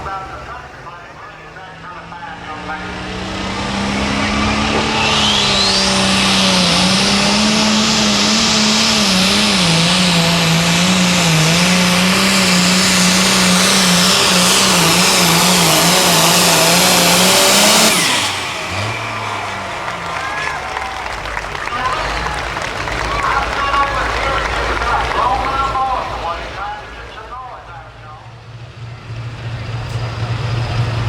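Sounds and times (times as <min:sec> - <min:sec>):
turbo whine: 0:00.0 - 0:22.0
tractor engine at full throttle: 0:00.0 - 0:31.0.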